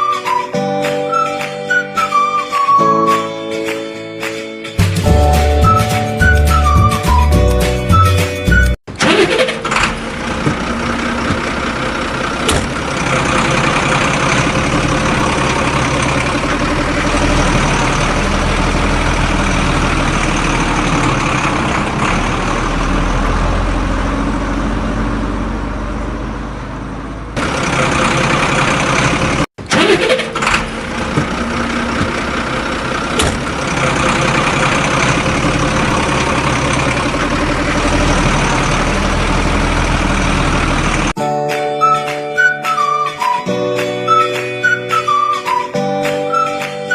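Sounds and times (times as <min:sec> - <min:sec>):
heavy machine engine running: 0:08.9 - 0:41.2.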